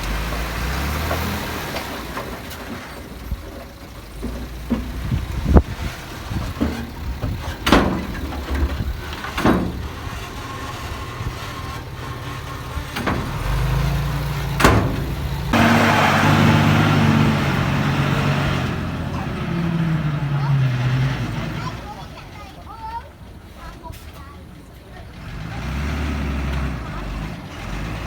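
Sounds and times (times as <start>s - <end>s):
heavy diesel engines running: 0.0s - 28.0s
sharp metal clanks: 12.9s - 15.9s
loud rushing noise: 14.6s - 18.9s.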